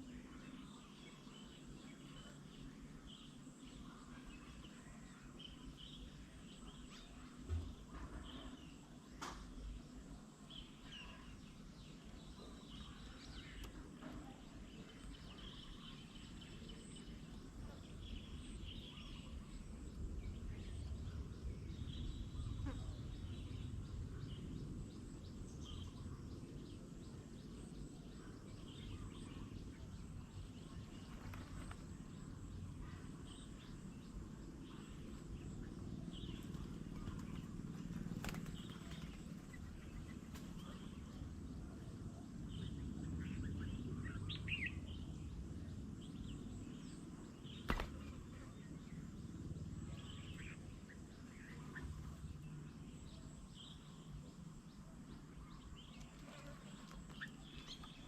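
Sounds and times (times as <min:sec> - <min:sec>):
birds calling: 0:00.0 - 0:58.0
steady low rumble: 0:15.4 - 0:56.1.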